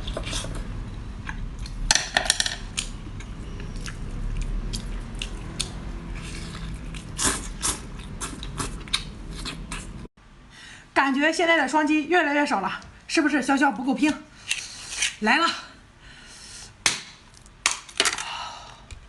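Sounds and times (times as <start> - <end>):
person chewing food: 2.7 - 10.1
wet mouth clicks: 6.5 - 10.0.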